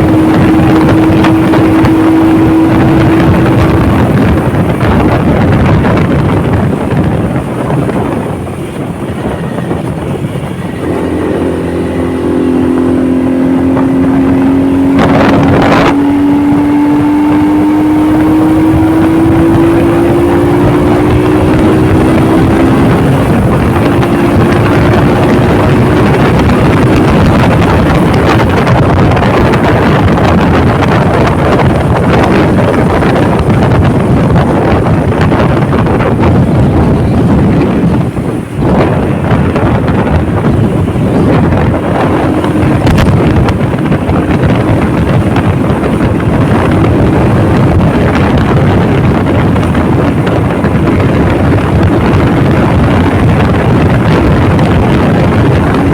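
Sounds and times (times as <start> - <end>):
loud rush: 0.0 - 55.9
motorcycle engine hum: 0.0 - 55.9
wind buffeting microphone: 0.0 - 55.9.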